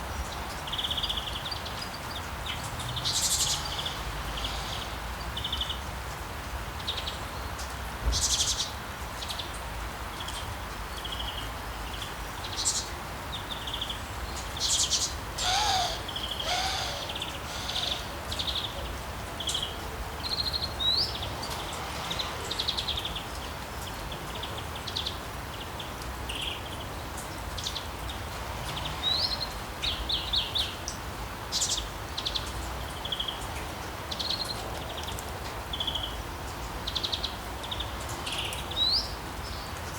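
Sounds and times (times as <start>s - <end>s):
small birds chirping: 10.2s - 21.9s
sea waves: 15.4s - 18.6s.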